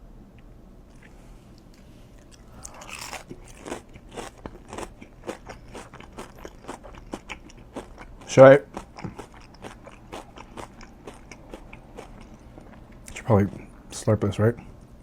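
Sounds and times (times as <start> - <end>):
person biting food: 0.9 - 7.3
crunchy chewing: 0.9 - 13.1.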